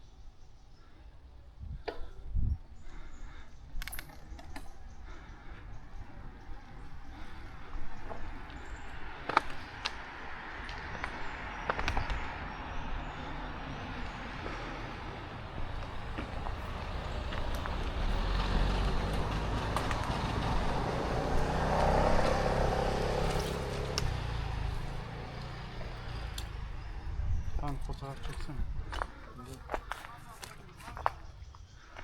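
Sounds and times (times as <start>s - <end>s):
road rumble: 0.0s - 32.0s
wind noise: 1.6s - 4.8s, 25.8s - 31.4s
car passing on road: 5.5s - 28.6s.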